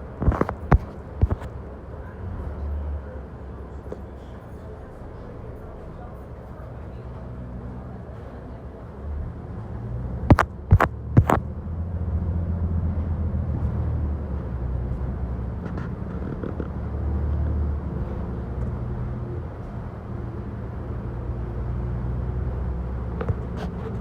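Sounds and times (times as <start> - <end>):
bus engine rumbling: 0.0 - 24.0
sharp knocks: 10.3 - 11.4.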